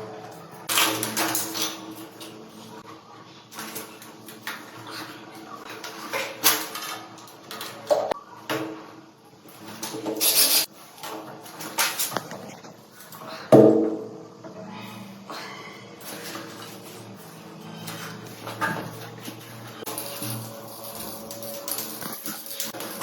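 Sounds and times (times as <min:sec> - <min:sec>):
metal tools clinking and scraping: 0:16.0 - 0:23.0.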